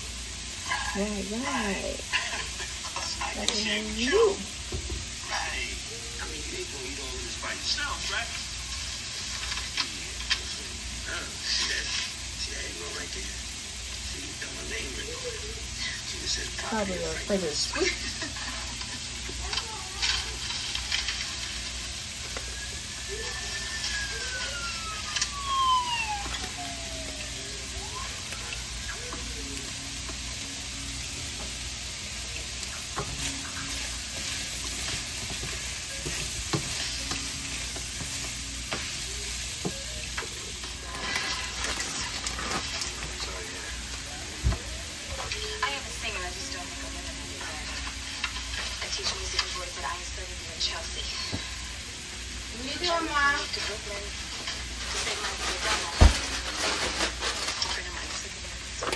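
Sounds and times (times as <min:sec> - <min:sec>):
filling sizzling in a pot: 0:00.0 - 0:58.9
falling sliding tone: 0:22.6 - 0:27.7.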